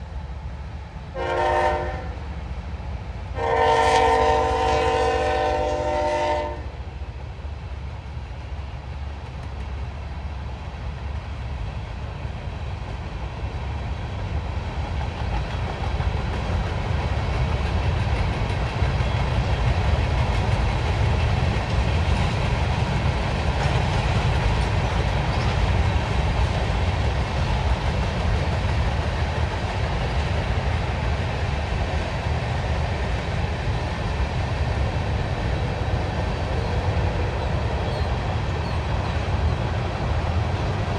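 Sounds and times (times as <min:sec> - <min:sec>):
freight train rumbling on rails: 0:00.0 - 0:40.9
train horn blast: 0:01.1 - 0:02.2, 0:03.4 - 0:06.8.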